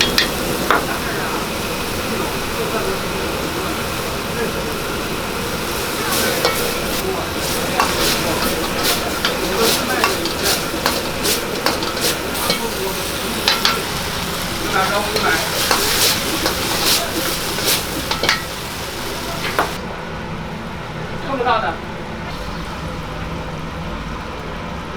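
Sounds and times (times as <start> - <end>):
metal utensil scraping pan: 0.0 - 0.8, 6.0 - 19.8
food sizzling in oil: 0.0 - 19.8.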